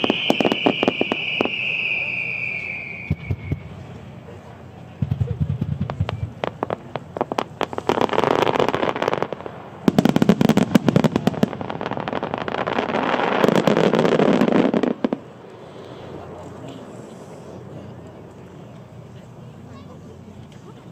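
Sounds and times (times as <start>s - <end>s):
firework pops and bangs: 0.0s - 3.8s, 5.0s - 15.6s
firework crackling: 0.0s - 17.6s.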